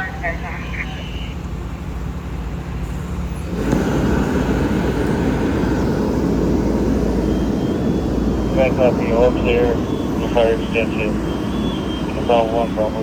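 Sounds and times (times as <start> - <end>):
diesel engine humming: 0.0 - 13.0
loud rushing noise: 3.4 - 13.0.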